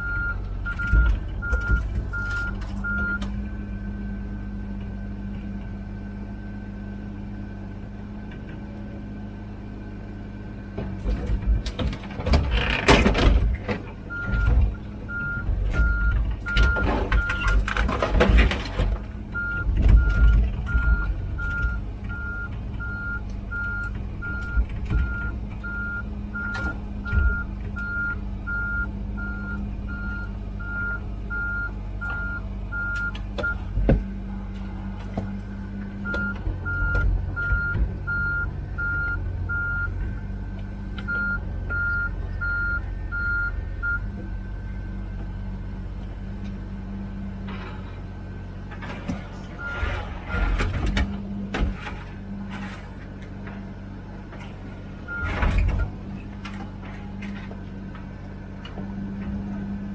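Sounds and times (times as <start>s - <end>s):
travel alarm beeping: 0.0s - 3.2s, 15.1s - 17.6s, 19.4s - 20.2s, 21.0s - 33.6s, 36.0s - 39.9s, 41.1s - 44.0s
diesel engine running: 0.0s - 59.9s.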